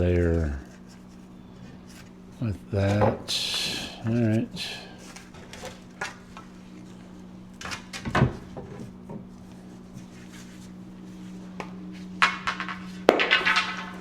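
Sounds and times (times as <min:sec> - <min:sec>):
steady low hum: 0:00.0 - 0:14.0
wooden stakes knocking together: 0:11.6 - 0:14.0.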